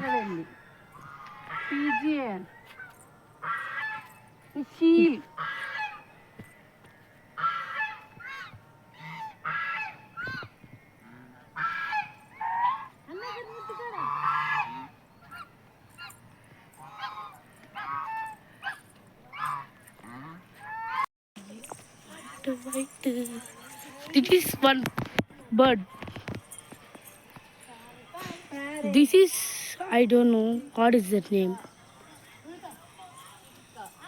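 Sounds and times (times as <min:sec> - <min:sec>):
geese honking: 0:00.0 - 0:06.2, 0:07.4 - 0:24.7.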